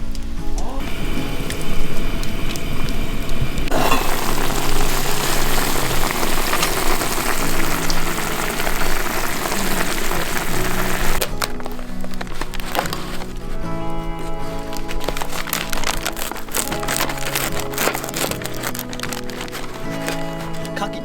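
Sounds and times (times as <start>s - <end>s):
background music: 0.0s - 21.0s
food sizzling in a pan: 0.8s - 11.3s.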